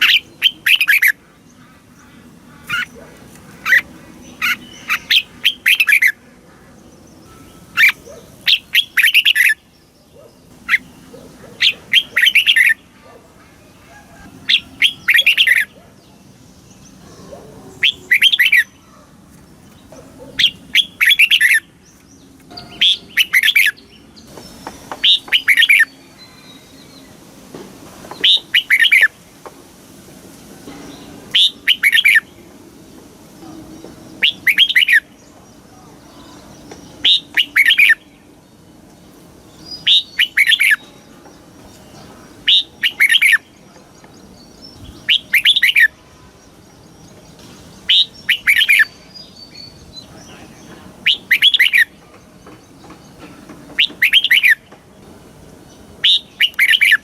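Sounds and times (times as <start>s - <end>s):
bird singing warbled notes: 14.5s - 15.8s, 16.8s - 18.8s, 34.2s - 35.2s, 39.6s - 41.2s, 42.0s - 52.0s.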